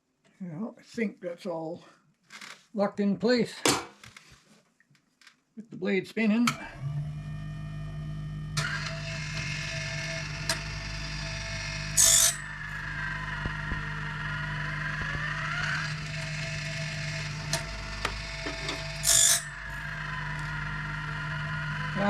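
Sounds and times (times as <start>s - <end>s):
electric motor hum: 6.5s - 22.0s
grinding wheel rasp: 8.4s - 22.0s.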